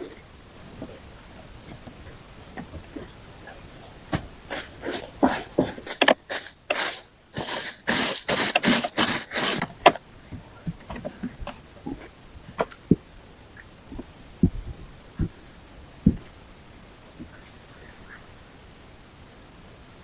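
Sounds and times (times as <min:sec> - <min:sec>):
rough scraping strokes: 0:03.8 - 0:10.0.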